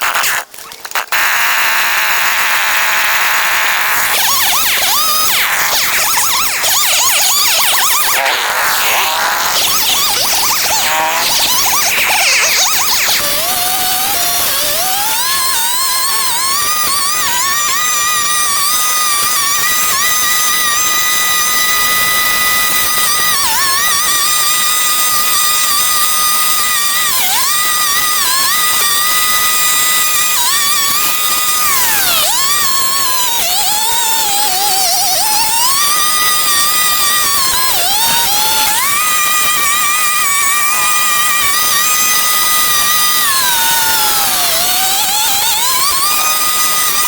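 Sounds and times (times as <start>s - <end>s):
power tool whining: 0.0s - 47.0s.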